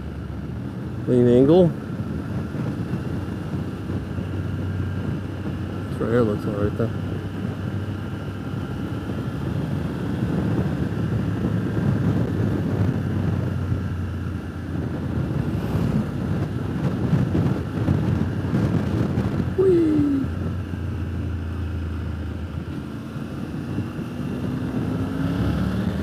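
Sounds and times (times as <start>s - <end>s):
motorcycle engine cruising: 0.0s - 26.0s
wind rushing over microphone: 0.0s - 26.0s.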